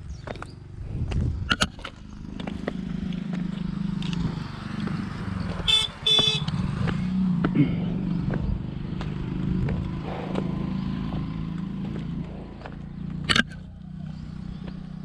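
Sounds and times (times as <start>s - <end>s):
motorcycle engine running: 0.0s - 15.0s
vehicle horn honking: 5.6s - 6.6s.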